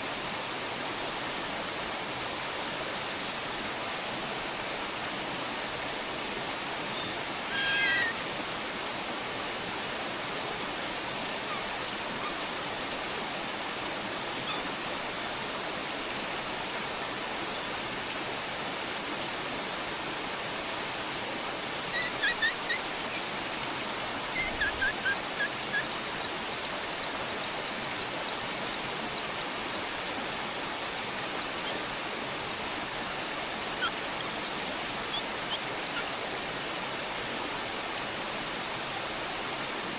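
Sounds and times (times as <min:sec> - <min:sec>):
high bird peeps: 0:07.5 - 0:08.2, 0:21.9 - 0:29.3, 0:33.8 - 0:38.7
bird chirps: 0:21.9 - 0:29.2, 0:33.8 - 0:37.4.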